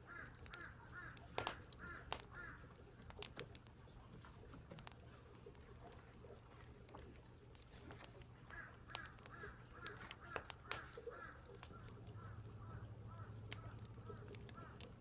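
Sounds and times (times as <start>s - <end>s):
faint crows cawing: 0.0s - 3.5s, 7.8s - 15.0s.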